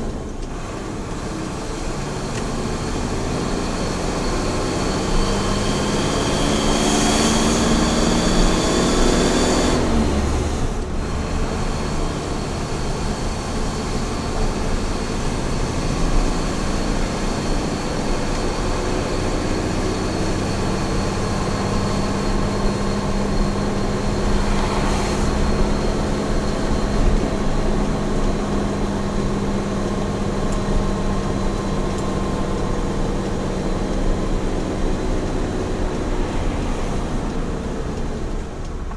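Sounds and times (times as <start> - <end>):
road and tyre noise: 0.0 - 38.9
truck engine running: 0.0 - 38.9.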